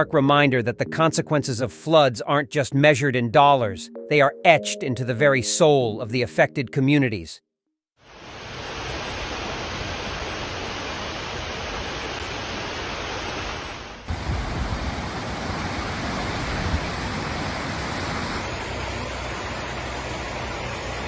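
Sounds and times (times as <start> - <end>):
rushing floodwater: 8.1 - 21.0.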